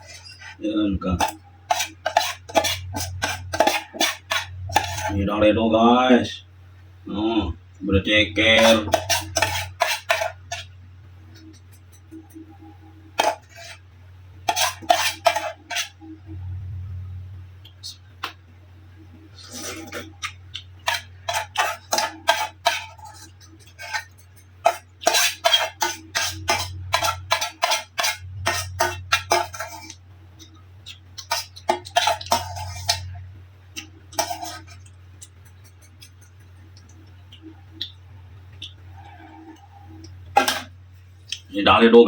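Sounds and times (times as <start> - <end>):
low steady hum: 0.0 - 42.0
cutlery clinking against a bowl: 8.6 - 10.7, 14.5 - 16.0, 19.5 - 33.2, 33.8 - 38.0.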